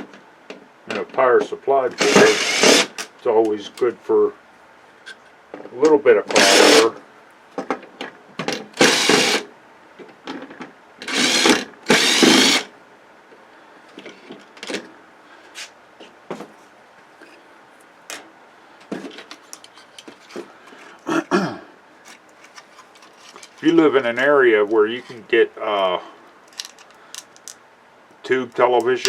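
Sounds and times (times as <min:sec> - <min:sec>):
power drill-driver bursts: 0:02.0 - 0:03.1, 0:06.3 - 0:07.0, 0:08.8 - 0:09.5, 0:11.0 - 0:12.7
clicks of small parts handled: 0:19.2 - 0:20.4, 0:26.5 - 0:27.6.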